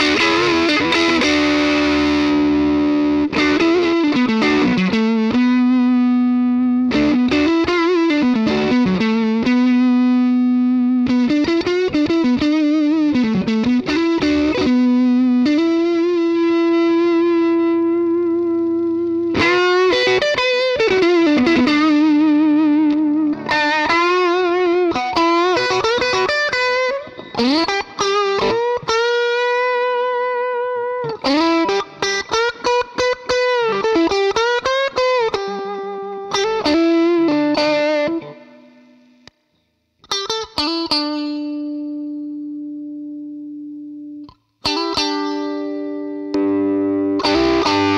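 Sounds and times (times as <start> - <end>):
electric guitar lead: 0.0 - 47.9.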